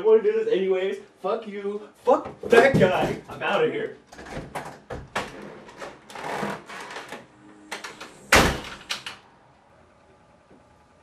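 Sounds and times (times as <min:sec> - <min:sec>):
door slamming shut: 0:07.9 - 0:09.2.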